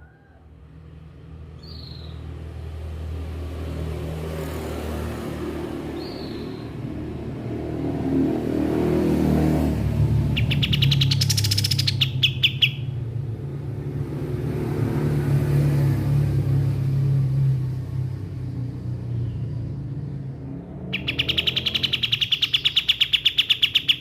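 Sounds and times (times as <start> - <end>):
songbird singing rapid trill: 1.6 - 2.2, 6.0 - 6.8, 10.3 - 13.0, 20.9 - 24.0.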